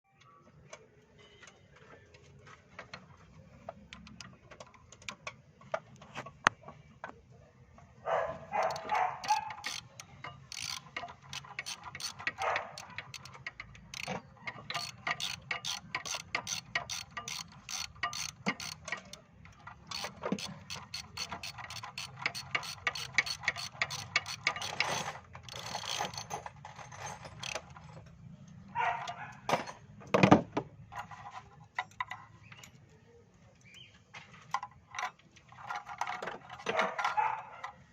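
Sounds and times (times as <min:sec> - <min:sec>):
rapid metallic clicking: 0:08.5 - 0:27.9.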